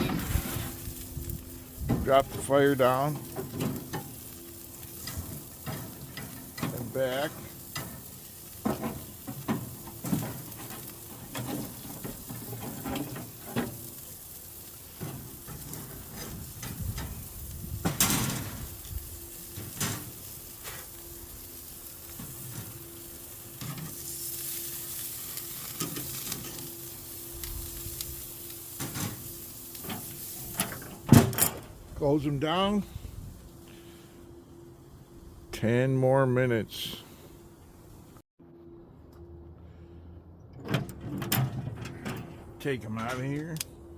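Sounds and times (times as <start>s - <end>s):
steaks sizzling on grill: 0.0s - 31.1s.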